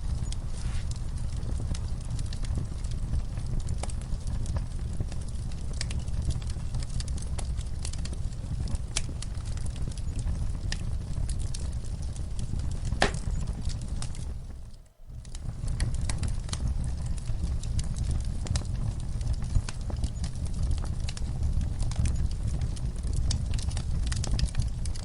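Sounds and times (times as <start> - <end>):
fire crackling and popping: 0.0 - 25.0.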